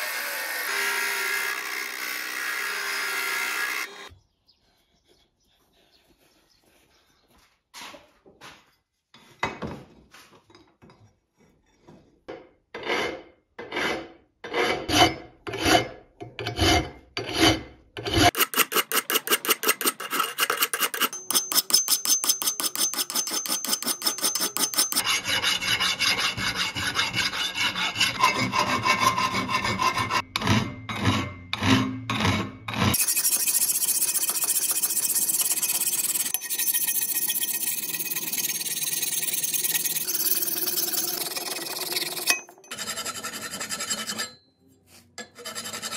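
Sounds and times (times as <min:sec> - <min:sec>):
abrasive scraping rusty steel: 0:12.9 - 0:45.9.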